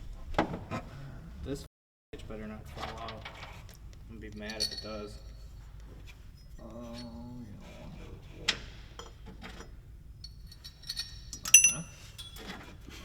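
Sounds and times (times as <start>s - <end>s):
metal tools clicking and clinking: 10.2s - 12.4s.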